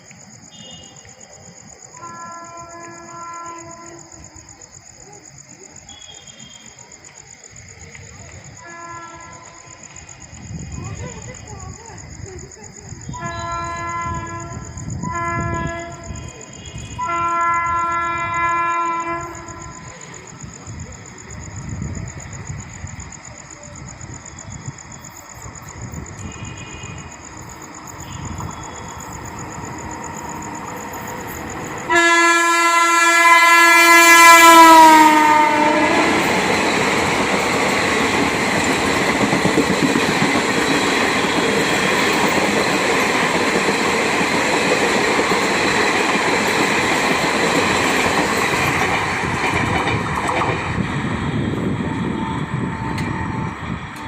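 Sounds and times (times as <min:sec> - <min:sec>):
train passing with wheel clatter: 0:00.0 - 0:54.0
train horn blast: 0:01.9 - 0:04.0, 0:08.6 - 0:09.7, 0:13.1 - 0:19.8, 0:26.2 - 0:27.2, 0:28.0 - 0:29.0, 0:31.9 - 0:36.3, 0:52.0 - 0:54.0.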